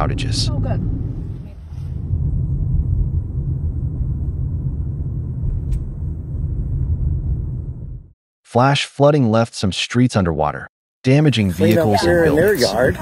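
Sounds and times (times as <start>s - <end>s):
low steady rumbling: 0.0s - 8.2s.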